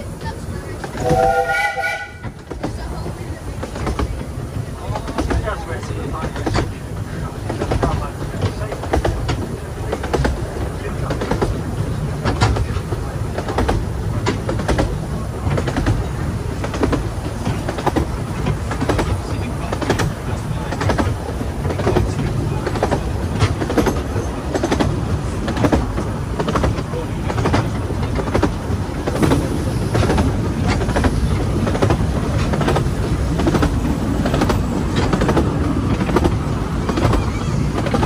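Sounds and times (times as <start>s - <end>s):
railway wheels rumbling: 0.0s - 38.0s
wheels clicking over rail joints: 0.0s - 38.0s.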